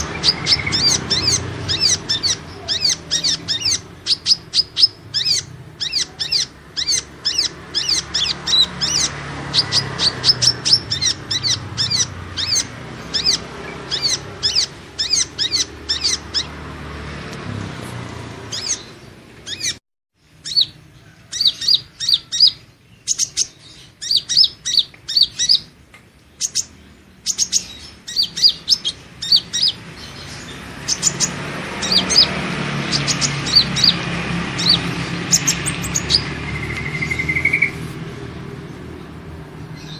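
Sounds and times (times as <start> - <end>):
bird high chirps: 0.0 - 16.6, 18.4 - 38.0.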